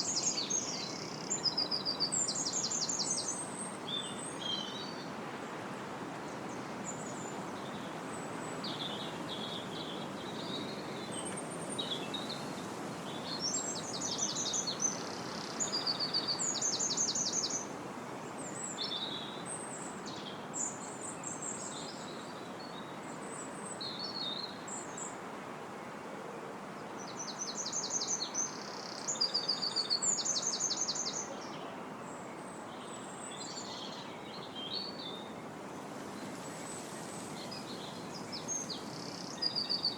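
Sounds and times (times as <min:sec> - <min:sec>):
wind through trees: 0:00.0 - 0:39.9
songbirds singing: 0:27.0 - 0:39.9.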